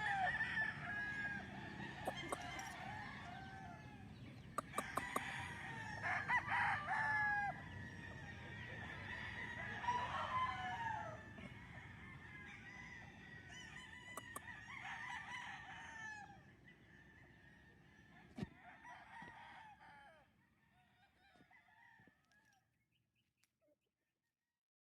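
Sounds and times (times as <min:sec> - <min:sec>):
roosters crowing: 0:00.0 - 0:20.4
chickens clucking: 0:01.4 - 0:06.2, 0:14.1 - 0:14.5.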